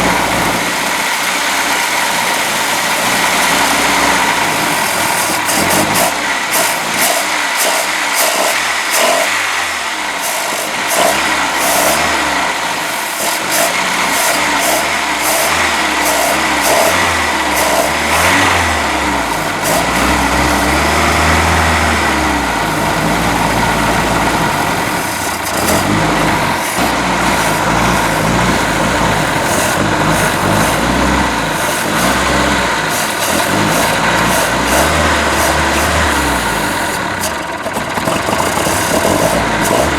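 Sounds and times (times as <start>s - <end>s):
boat engine running roughly: 0.0s - 39.9s.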